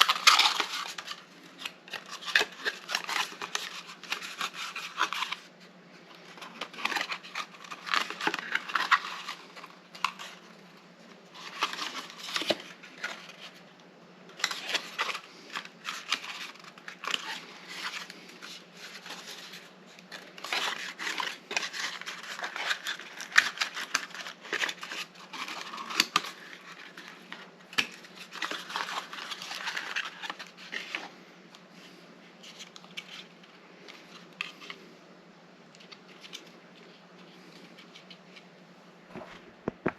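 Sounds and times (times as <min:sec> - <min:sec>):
cardboard and plastic crinkling: 0:00.0 - 0:13.7, 0:14.3 - 0:31.2.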